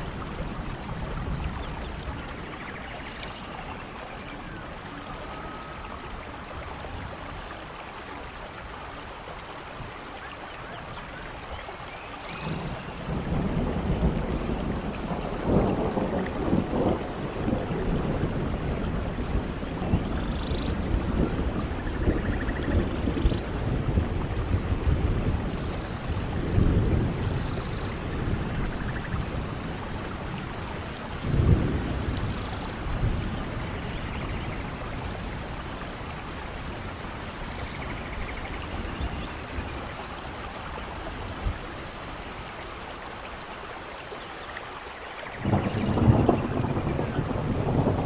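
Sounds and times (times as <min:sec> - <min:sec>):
steady rain: 0:00.0 - 0:48.0
thunder rumbling: 0:12.4 - 0:39.6, 0:45.3 - 0:48.0.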